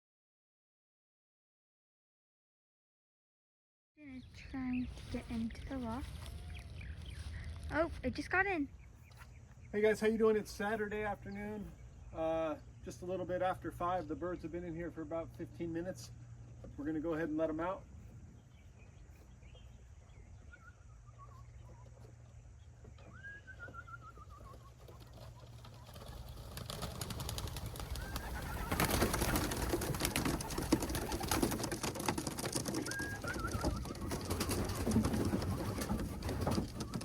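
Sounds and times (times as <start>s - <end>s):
birds scuffling: 4.2s - 37.0s
pigeons whistled calls: 20.1s - 21.9s, 22.9s - 26.2s, 27.3s - 31.8s, 32.5s - 37.0s
pigeons cooing: 23.1s - 37.0s
wing flapping: 23.6s - 37.0s.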